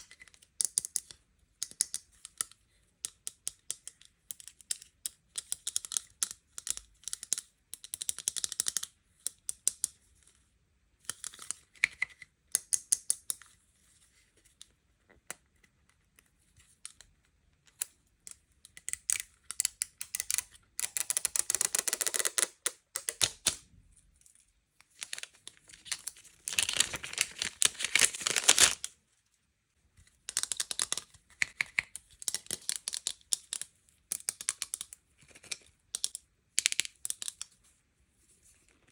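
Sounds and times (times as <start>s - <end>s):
plastic wrapping crinkling: 25.0s - 28.9s
packaging clicks and taps: 30.2s - 37.5s.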